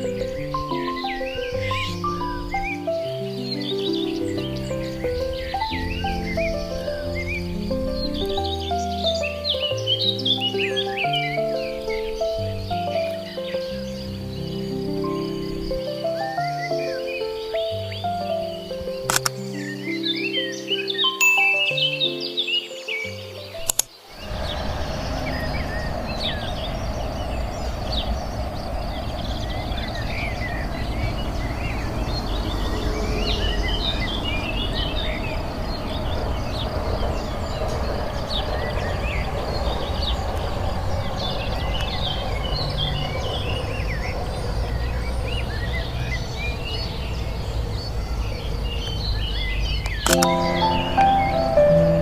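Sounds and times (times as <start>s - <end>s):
small birds chirping and twittering: 0.0s - 52.0s
low outdoor rumble: 24.1s - 52.0s.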